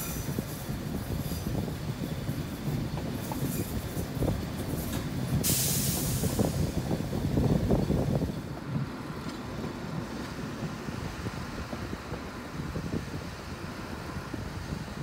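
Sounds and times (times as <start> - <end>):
railcar wheels and engine rumbling: 0.0 - 15.0
air brake hiss: 5.4 - 6.8.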